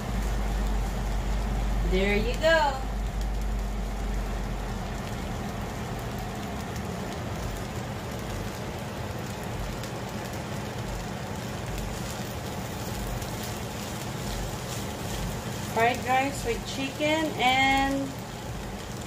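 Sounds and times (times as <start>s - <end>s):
fried rice sizzling in skillet: 0.0s - 19.0s
spatula stirring food: 11.7s - 17.0s.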